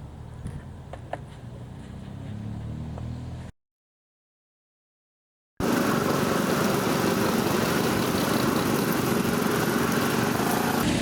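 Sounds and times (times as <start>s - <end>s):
racing car engines running: 5.6s - 11.0s.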